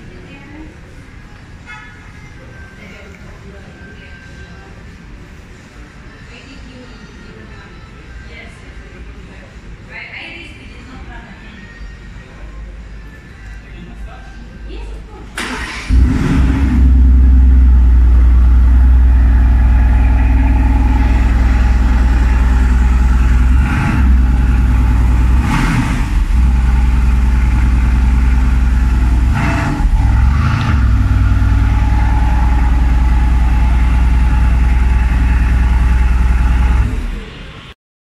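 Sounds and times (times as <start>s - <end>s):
car engine idling: 15.4s - 37.4s.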